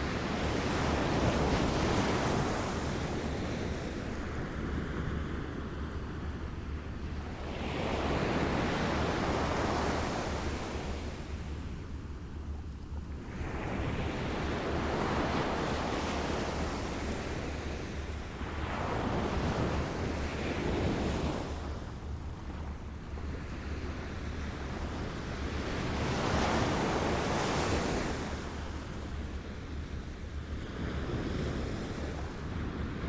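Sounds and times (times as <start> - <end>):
waves washing in and out: 0.0 - 5.5, 23.2 - 33.0.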